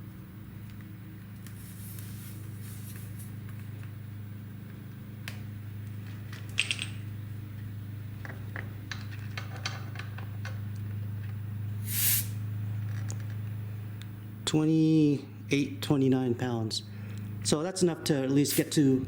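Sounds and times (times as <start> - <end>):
faint gas hiss: 11.8 - 12.5, 18.5 - 19.0.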